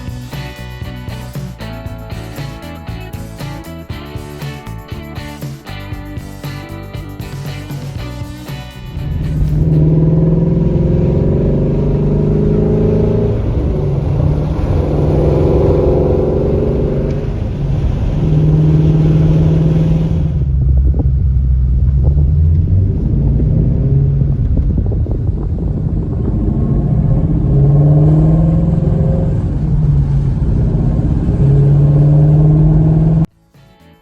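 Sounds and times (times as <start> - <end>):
car engine running under load: 8.8 - 33.3.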